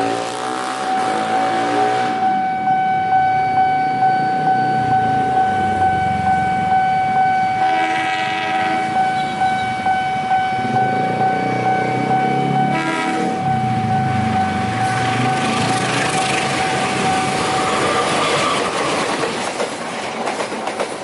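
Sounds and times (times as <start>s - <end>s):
train horn: 0.0s - 2.3s, 7.6s - 9.8s, 12.4s - 13.8s
level crossing alarm ringing: 0.0s - 18.4s
passing train rumble: 0.0s - 21.0s.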